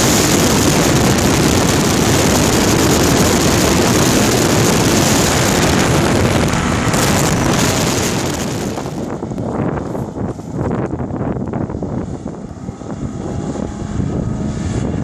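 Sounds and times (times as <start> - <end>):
water rushing: 0.0 - 11.1
outboard motor running: 0.0 - 15.0
wind: 0.0 - 15.0.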